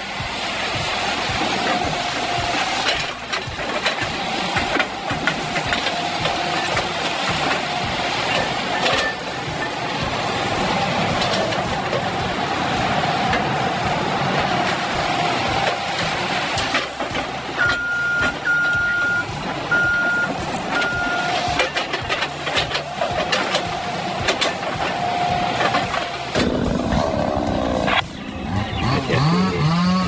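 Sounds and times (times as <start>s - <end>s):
diesel engine under load: 0.0s - 30.0s
reversing alarm beeping: 5.1s - 26.3s
sharp knocks and cracks: 20.3s - 26.5s.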